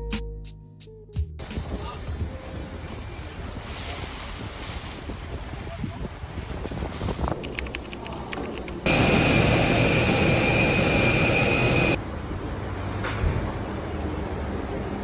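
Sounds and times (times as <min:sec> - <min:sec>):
jet engine whine: 0:08.8 - 0:12.0.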